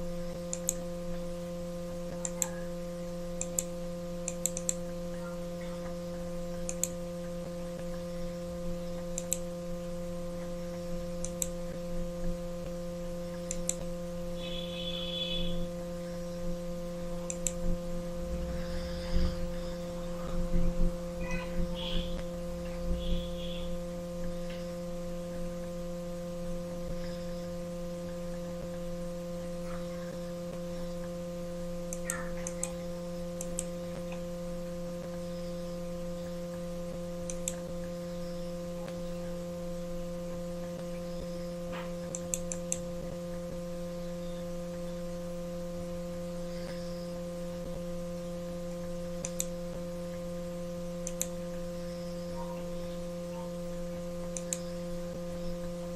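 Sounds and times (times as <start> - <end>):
electrical mains hum: 0.0 - 55.9
faint computer clicks: 0.4 - 1.2, 2.1 - 2.7, 3.4 - 5.0, 5.6 - 8.0, 9.0 - 9.5, 11.2 - 11.8, 13.3 - 13.9, 17.2 - 17.8, 37.2 - 38.0, 41.7 - 43.4, 49.2 - 50.2, 51.0 - 51.6, 54.3 - 54.7.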